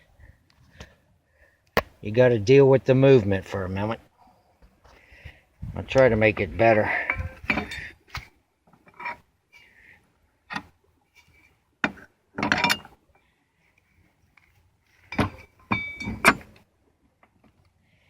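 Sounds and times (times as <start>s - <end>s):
metal parts clanking: 6.9s - 8.2s, 10.5s - 13.0s, 15.1s - 16.6s
sharp metal knocks: 15.1s - 16.6s.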